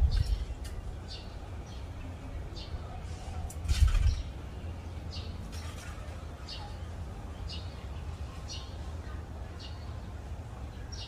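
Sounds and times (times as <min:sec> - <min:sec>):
steady low rumble: 0:00.0 - 0:03.0.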